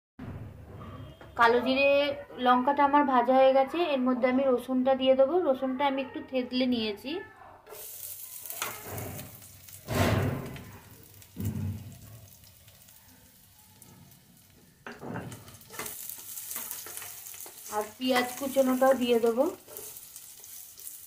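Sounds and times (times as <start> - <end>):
garlic sizzling in hot oil: 7.7 - 21.0
wooden spatula scraping pan: 14.9 - 21.0.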